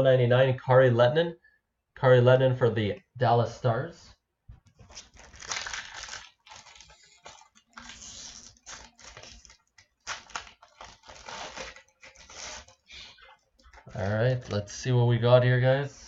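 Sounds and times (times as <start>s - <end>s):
wrapper crinkling and tearing: 4.8s - 14.5s.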